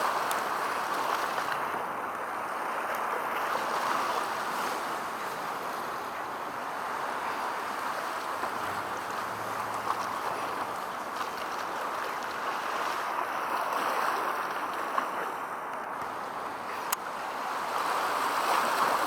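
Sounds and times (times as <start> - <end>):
outdoor background noise: 0.0 - 19.0
faint low hum: 5.2 - 12.3.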